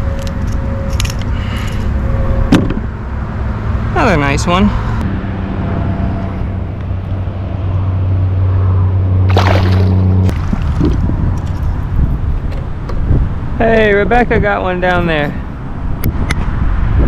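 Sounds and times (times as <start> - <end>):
low motor hum: 4.8 - 14.4
water sloshing: 9.3 - 12.9.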